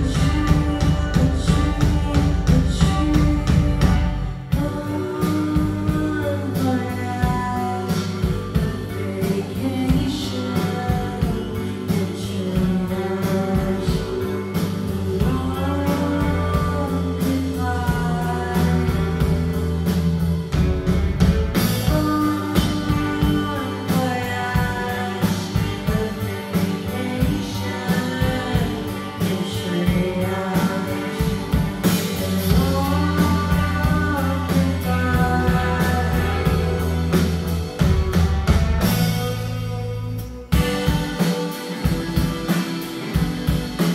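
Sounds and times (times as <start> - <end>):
person singing: 0.0 - 20.7, 21.5 - 43.9
rock band playing live: 0.0 - 43.9.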